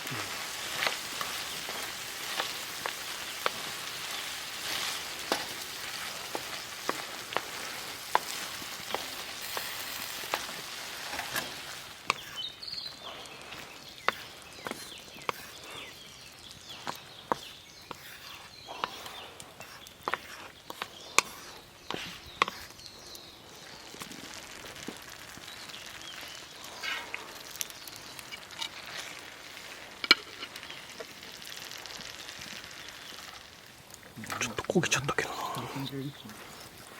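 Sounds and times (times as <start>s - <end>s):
food sizzling in a pan: 0.0s - 34.7s.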